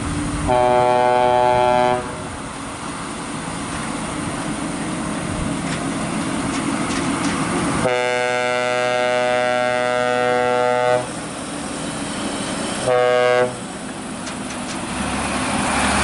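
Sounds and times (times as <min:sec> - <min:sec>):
traffic rumbling: 0:00.0 - 0:16.0
air horn blast: 0:00.5 - 0:02.3, 0:07.8 - 0:11.1, 0:12.8 - 0:13.6.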